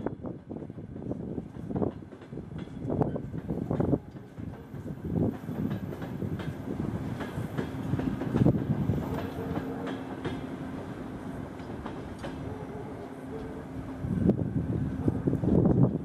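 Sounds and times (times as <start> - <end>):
wheels clacking over rail joints: 1.5 - 13.6.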